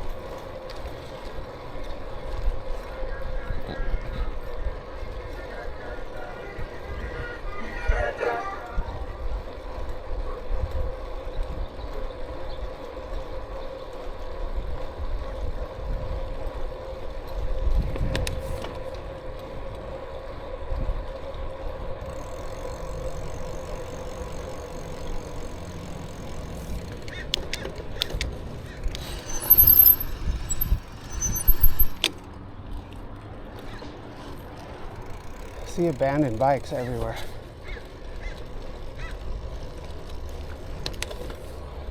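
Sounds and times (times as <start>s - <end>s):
bicycle tyre noise: 0.0s - 41.9s
wind rumbling on microphone: 14.3s - 27.0s, 28.0s - 32.1s
loud bursts with high squeal: 29.0s - 32.0s.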